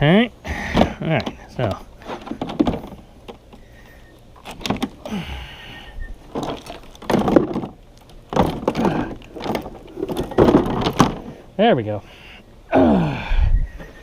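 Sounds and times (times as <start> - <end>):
hard plastic knocks and scrapes: 0.7 - 3.6, 4.4 - 5.0, 6.3 - 11.4.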